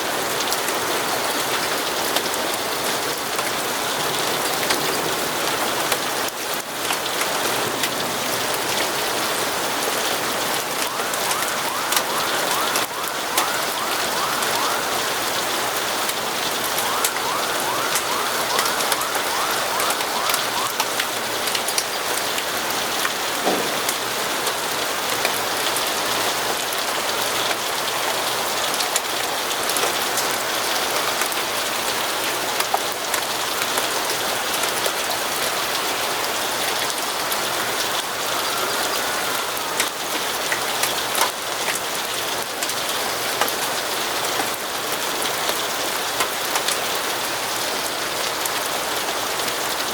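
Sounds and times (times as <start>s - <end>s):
steady rain falling: 0.0s - 49.9s
raindrops ticking: 0.1s - 49.9s.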